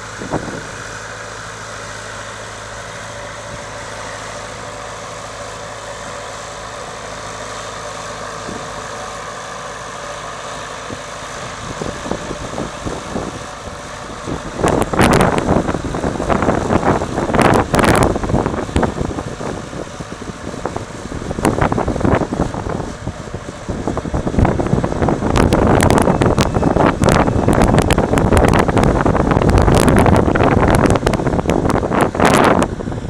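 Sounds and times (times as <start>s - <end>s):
wind buffeting microphone: 0.0s - 0.9s, 10.7s - 33.0s
tractor diesel engine under load: 0.0s - 33.0s.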